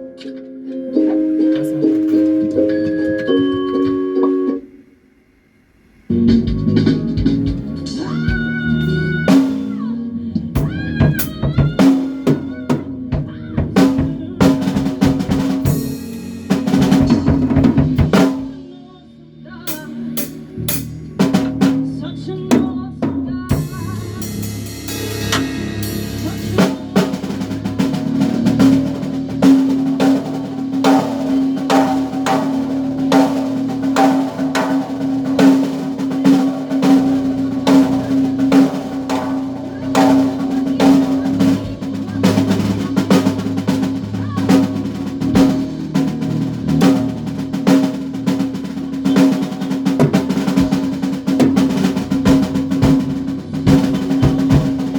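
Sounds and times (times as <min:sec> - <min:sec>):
band playing: 0:00.0 - 0:04.7, 0:06.1 - 0:18.8, 0:19.7 - 0:54.9
drum kit: 0:00.0 - 0:04.7, 0:06.1 - 0:18.7, 0:19.7 - 0:54.9.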